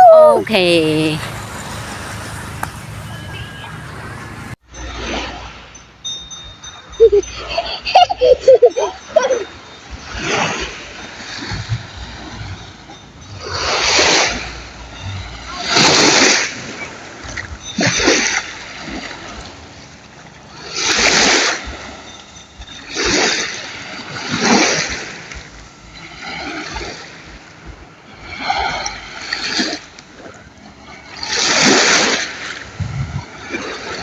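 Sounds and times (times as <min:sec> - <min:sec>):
sea waves breaking: 0:00.0 - 0:04.6
water sloshing: 0:00.5 - 0:04.6.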